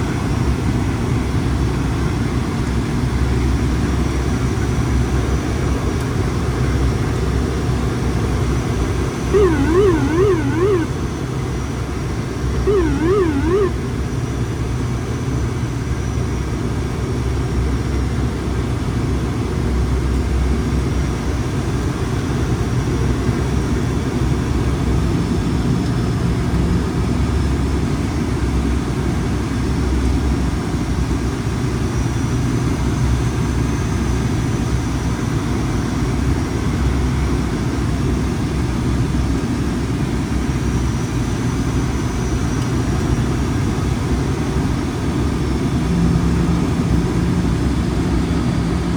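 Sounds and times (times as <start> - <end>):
warbling electronic alert tone: 9.3 - 10.9, 12.7 - 13.8
turboprop engines droning: 9.3 - 11.0, 12.6 - 13.8.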